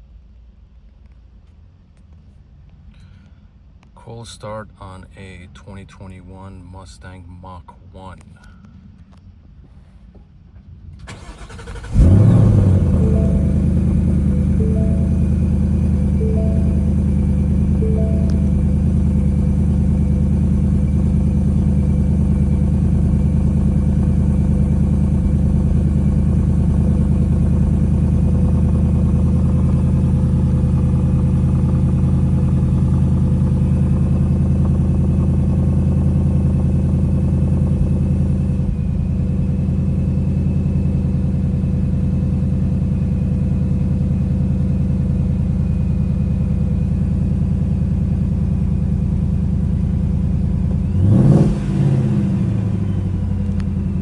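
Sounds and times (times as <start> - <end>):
vee eight engine idling: 11.1 - 54.0.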